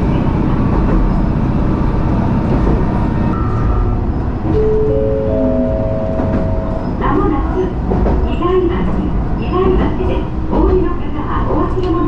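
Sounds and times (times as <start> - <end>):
railcar running noise: 0.0 - 12.0
rising three-note announcement chime: 3.4 - 7.0.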